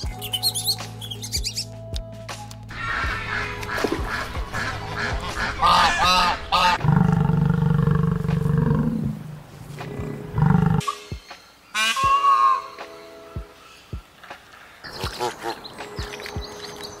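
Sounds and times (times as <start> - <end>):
geese honking: 2.7 - 6.8, 11.7 - 12.8
peacock calling: 10.4 - 13.8.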